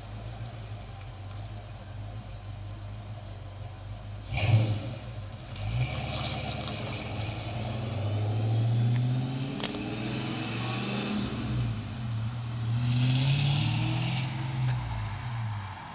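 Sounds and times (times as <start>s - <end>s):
deep car exhaust revving: 3.8s - 15.7s.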